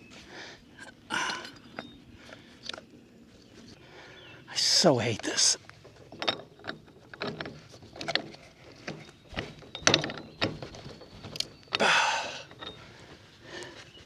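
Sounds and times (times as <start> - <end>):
metal coupler knocking and clunking: 11.3 - 11.5.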